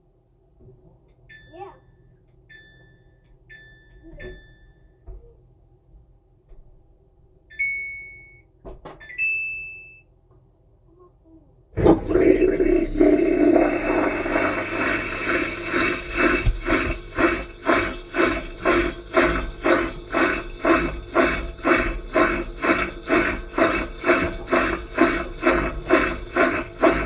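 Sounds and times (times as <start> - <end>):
washing machine swishing: 11.8 - 27.0.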